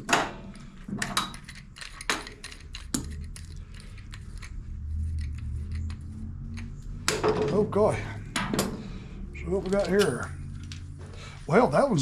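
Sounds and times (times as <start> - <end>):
low steady hum: 0.0 - 12.0
metal tools clinking: 9.4 - 10.8.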